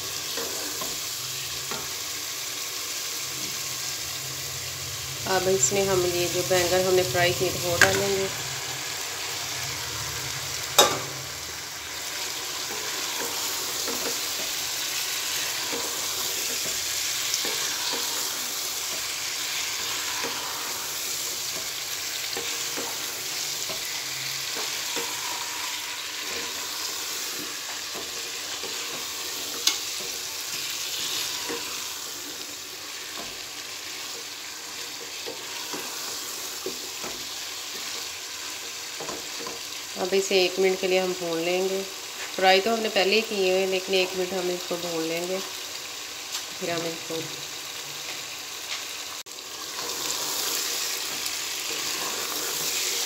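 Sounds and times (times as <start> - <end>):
vegetables sizzling in a pot: 0.0 - 53.0
wooden spatula stirring and scraping: 12.0 - 39.9, 49.7 - 53.0.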